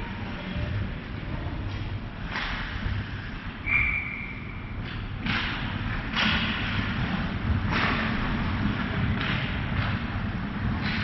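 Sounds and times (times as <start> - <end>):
low rink rumble: 0.0 - 11.0
skates and sticks scraping ice: 1.6 - 3.6, 4.8 - 11.0
referee's whistle: 3.6 - 4.4.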